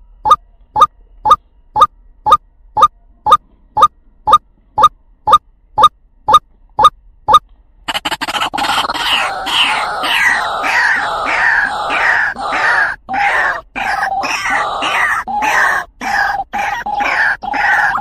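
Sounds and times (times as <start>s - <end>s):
waterhen calling: 8.4s - 18.0s.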